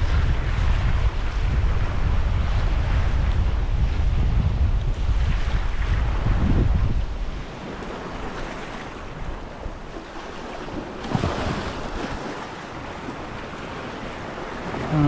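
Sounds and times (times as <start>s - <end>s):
wind buffeting microphone: 0.0s - 15.0s
sea waves washing against rocks: 5.5s - 15.0s.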